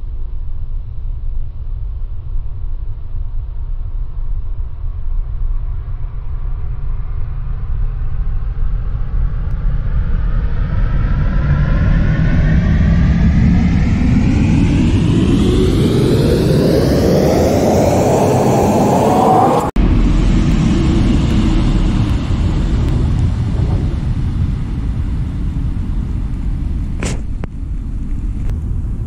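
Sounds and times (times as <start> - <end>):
train approaching and passing: 10.0 - 27.0.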